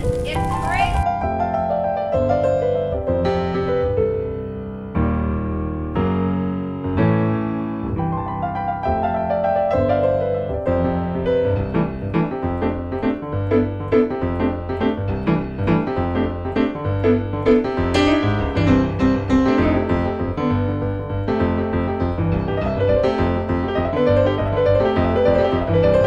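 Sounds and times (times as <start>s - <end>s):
piano music: 0.0s - 26.0s.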